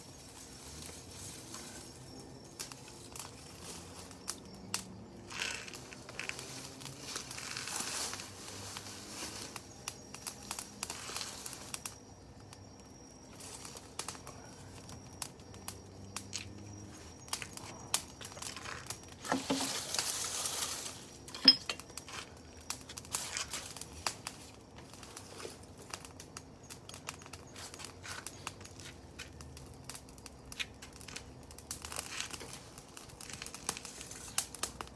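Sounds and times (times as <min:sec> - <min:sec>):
fire hissing flare-ups: 0:00.0 - 0:34.9
wood fire crackling: 0:00.0 - 0:34.9.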